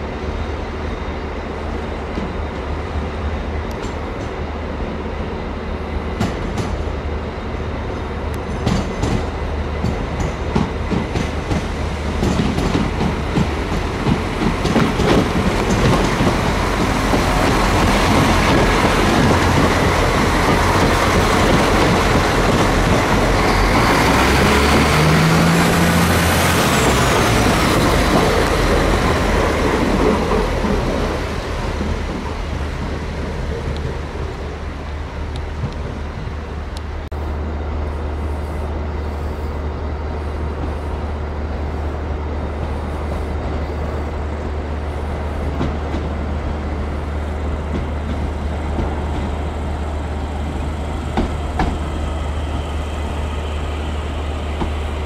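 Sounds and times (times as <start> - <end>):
train wheels rumbling: 0.0 - 55.0.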